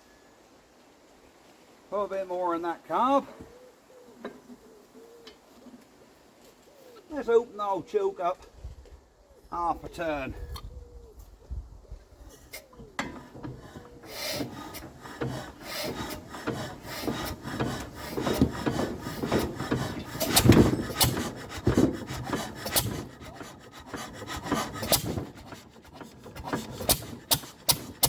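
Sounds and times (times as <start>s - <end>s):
engine cranked by hand clanking: 12.4s - 28.0s.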